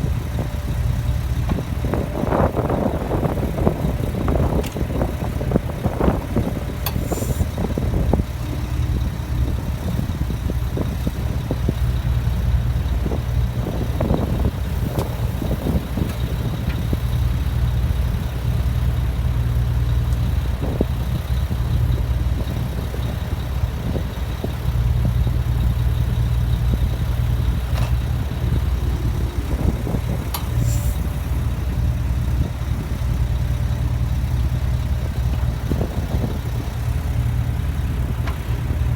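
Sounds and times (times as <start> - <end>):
backhoe diesel engine running: 0.0 - 38.9.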